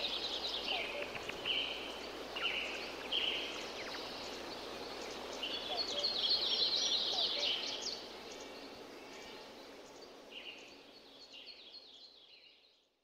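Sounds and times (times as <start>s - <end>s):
birds calling: 0.0s - 9.6s
steady background hiss: 0.0s - 13.0s.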